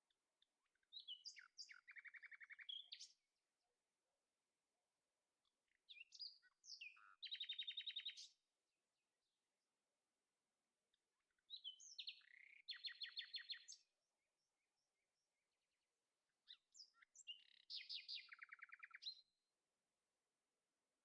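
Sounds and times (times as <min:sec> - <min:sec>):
songbird singing: 0:00.0 - 0:03.3, 0:05.4 - 0:08.5, 0:10.9 - 0:19.5.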